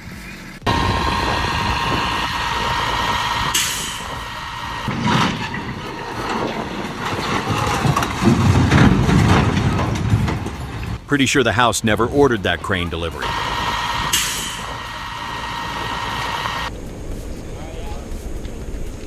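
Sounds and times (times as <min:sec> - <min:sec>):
thin steady whine: 0:00.0 - 0:08.9, 0:10.6 - 0:19.0
heavy engine running: 0:00.1 - 0:19.0.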